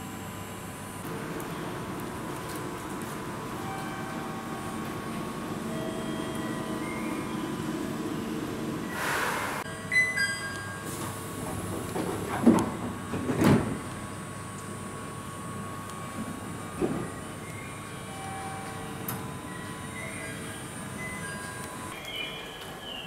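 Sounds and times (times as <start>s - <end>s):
electric train humming: 0.0s - 23.0s
air hiss: 8.9s - 9.7s.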